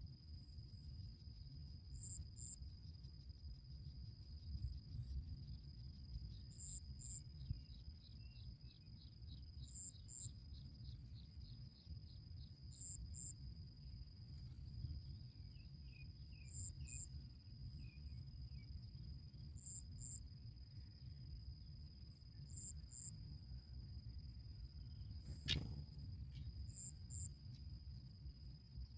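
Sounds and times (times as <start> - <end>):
faint low rumble: 0.0 - 28.9
insect buzzing: 24.9 - 27.4.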